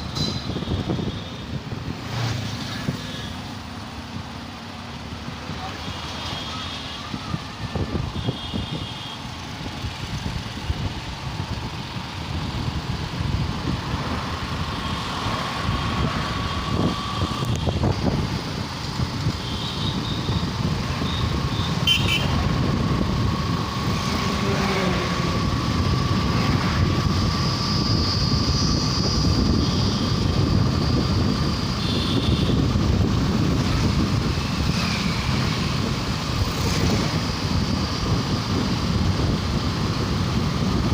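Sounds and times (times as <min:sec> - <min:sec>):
motorcycle engine and road rumble: 0:00.0 - 0:40.9
wind buffeting microphone: 0:09.5 - 0:40.9
high-pitched horn beeps: 0:21.0 - 0:22.4.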